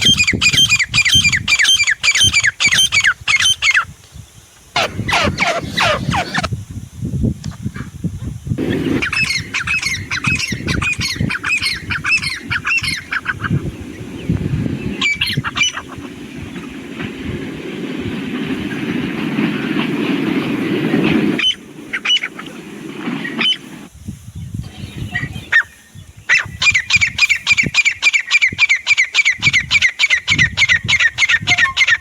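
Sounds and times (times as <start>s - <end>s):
francolin calling harsh notes: 4.8s - 6.5s
steady rough noise: 4.8s - 6.5s, 8.6s - 23.9s.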